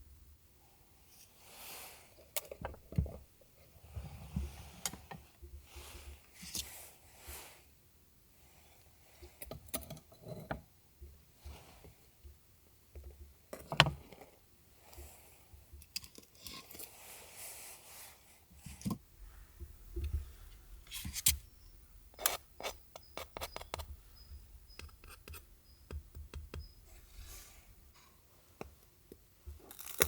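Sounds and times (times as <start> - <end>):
small objects clicking and scraping: 18.9 - 27.9, 29.6 - 30.0
rustling: 19.0 - 28.0.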